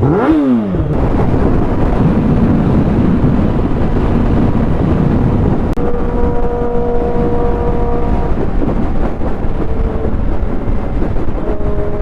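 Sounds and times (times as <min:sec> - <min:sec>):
motorcycle engine: 0:00.0 - 0:12.0
wind rush: 0:00.0 - 0:12.0
multi-tone whine: 0:04.6 - 0:12.0.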